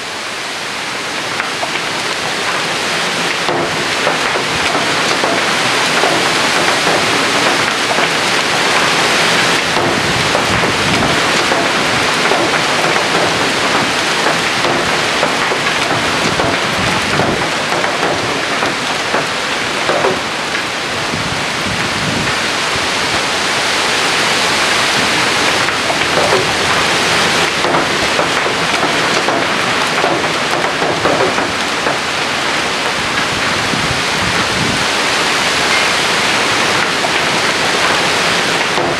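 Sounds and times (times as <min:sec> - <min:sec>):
strong wind gusting: 0:02.0 - 0:38.9.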